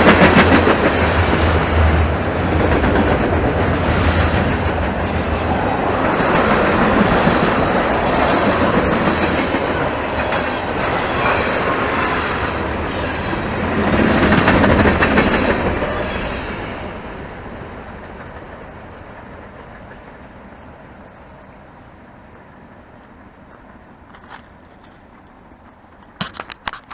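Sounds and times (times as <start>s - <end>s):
freight train wheels on rails: 0.0s - 26.9s.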